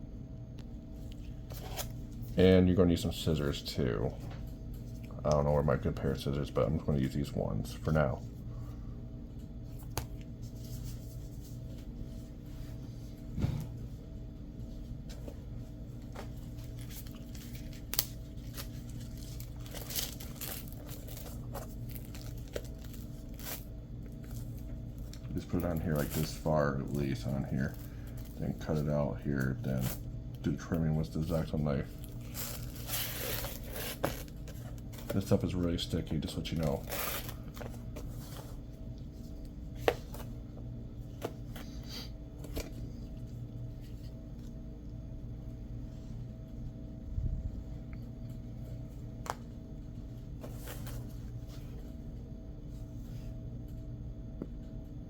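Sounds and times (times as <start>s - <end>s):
steady low hum: 0.0s - 55.0s
velcro crinkling: 16.5s - 28.8s, 31.2s - 35.3s, 36.6s - 37.8s.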